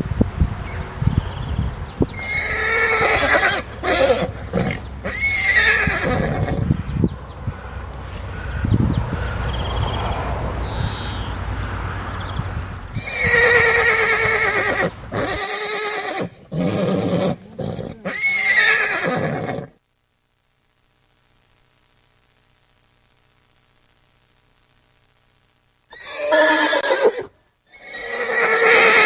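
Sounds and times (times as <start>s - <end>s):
rough low noise: 0.0s - 18.6s
horse neighing: 2.1s - 6.7s, 13.0s - 19.7s, 25.9s - 29.0s.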